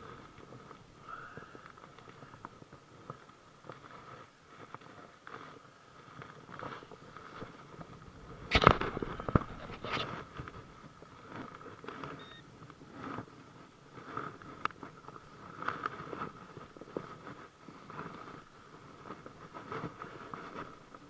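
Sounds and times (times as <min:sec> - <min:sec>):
handling knocks and crackles: 0:06.5 - 0:11.6
metal detector wavering tones: 0:12.1 - 0:12.4.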